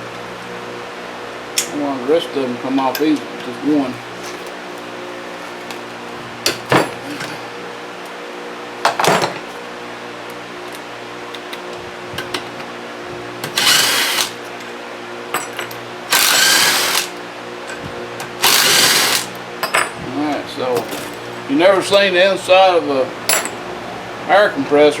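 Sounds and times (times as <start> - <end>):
fan humming: 0.0 - 25.0
pneumatic tool spinning: 13.4 - 14.4, 16.1 - 17.1, 18.4 - 19.4
metal clinks: 23.3 - 23.6.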